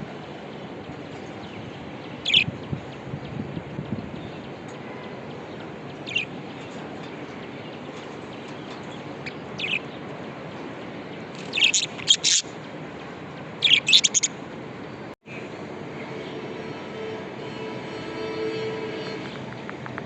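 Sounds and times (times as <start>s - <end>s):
budgerigars chirping: 2.2s - 2.5s, 11.4s - 12.5s, 13.6s - 14.3s.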